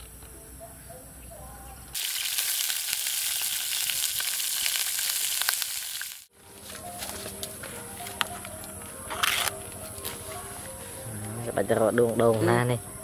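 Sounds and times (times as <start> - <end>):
food sizzling in hot oil: 1.9 - 6.3.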